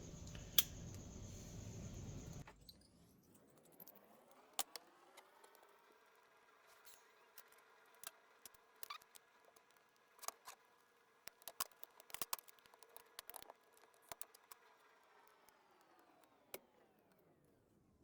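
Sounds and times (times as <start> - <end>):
faint metallic clicks and scrapes: 6.5 - 17.5.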